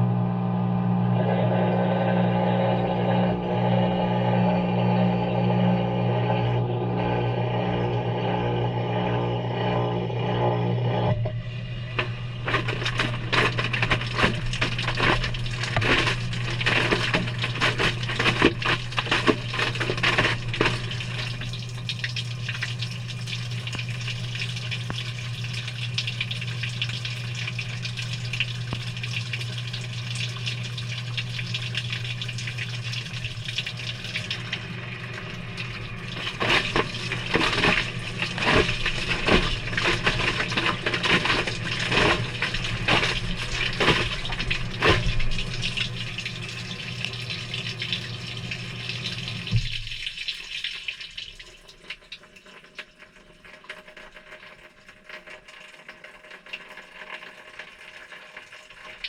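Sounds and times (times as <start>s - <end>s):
humming tone: 0.0s - 29.0s
washer motor hum: 0.0s - 59.0s
water sloshing in washer drum: 11.1s - 59.0s.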